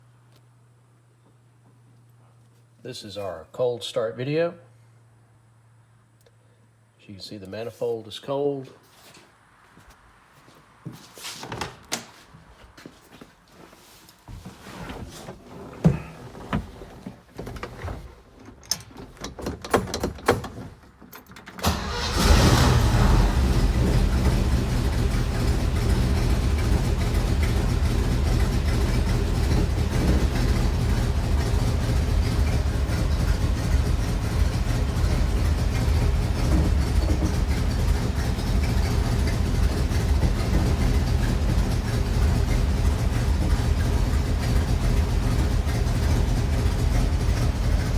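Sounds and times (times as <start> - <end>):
car engine starting and idling: 21.6 - 47.9.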